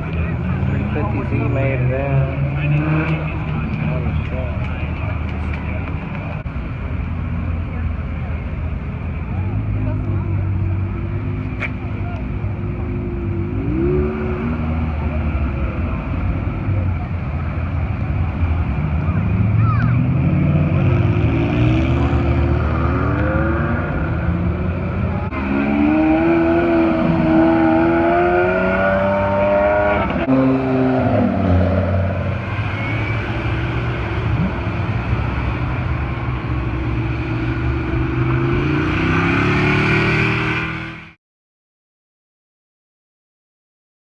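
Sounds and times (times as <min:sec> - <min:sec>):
car engine accelerating: 0:00.0 - 0:41.2.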